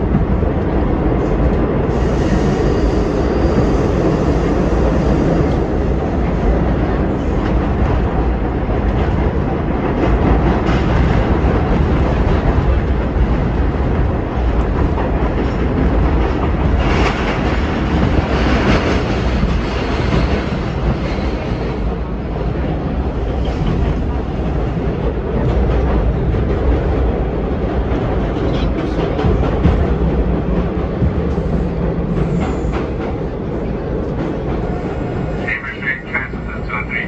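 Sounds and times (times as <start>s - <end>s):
train wheels rumbling on rails: 0.0s - 37.0s
train hiss: 1.9s - 5.4s.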